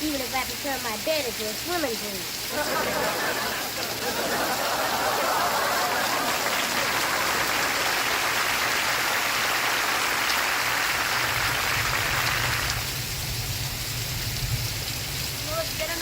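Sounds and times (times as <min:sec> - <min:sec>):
steady rainfall: 0:00.0 - 0:16.0
audience applause: 0:02.5 - 0:12.9.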